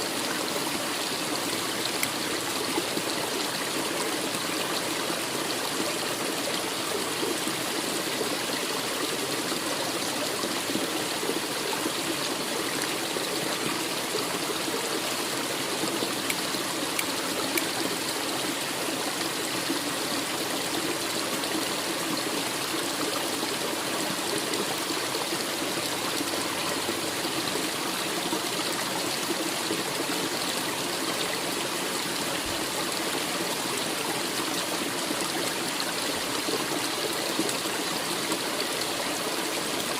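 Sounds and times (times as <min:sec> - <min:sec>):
stream trickling over rocks: 0:00.0 - 0:39.9.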